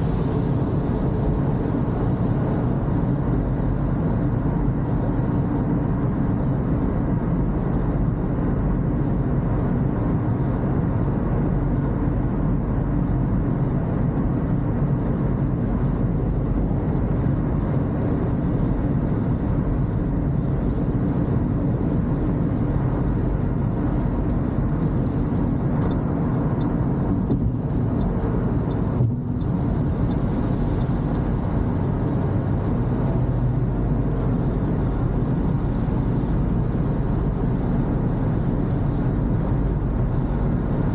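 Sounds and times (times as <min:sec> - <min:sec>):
car cabin road and engine noise: 0:00.0 - 0:40.9.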